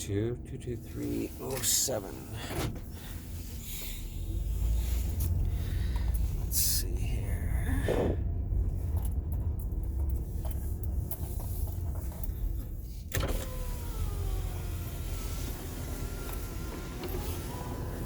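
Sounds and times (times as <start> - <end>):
engine idling: 0.0 - 18.0
outside noise: 0.0 - 18.0
power window motor: 12.6 - 18.0.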